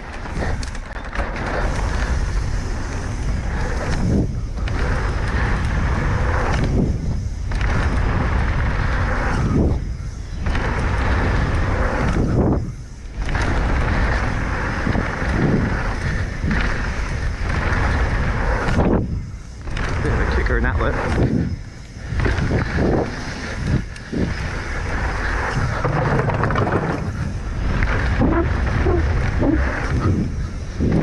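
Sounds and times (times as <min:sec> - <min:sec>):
bike tyres rattling over dirt: 0:00.0 - 0:31.0
wind rushing over microphone: 0:00.0 - 0:31.0.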